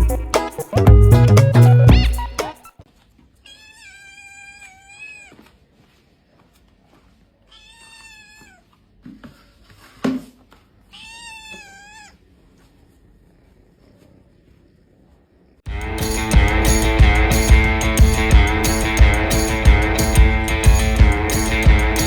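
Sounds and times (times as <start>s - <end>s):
cat meowing: 3.4s - 5.5s, 7.5s - 8.7s, 10.9s - 12.3s.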